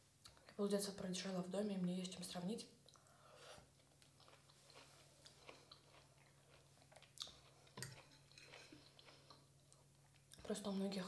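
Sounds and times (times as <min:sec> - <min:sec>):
chewing crunchy food: 0:02.8 - 0:10.6.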